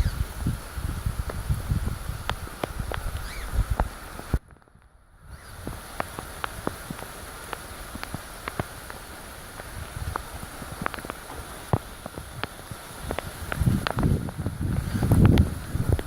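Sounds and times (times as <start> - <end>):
rain hissing: 0.0 - 4.4, 5.2 - 16.0
raindrops ticking: 5.6 - 16.0.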